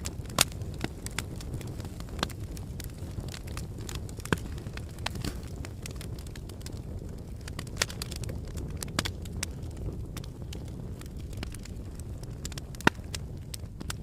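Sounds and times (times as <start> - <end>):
fire crackling and popping: 0.0 - 14.0
fire flames rumbling: 0.0 - 14.0.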